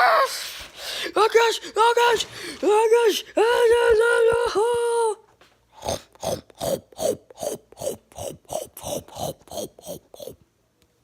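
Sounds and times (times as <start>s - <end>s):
rasping chewing chomps: 5.8s - 10.4s.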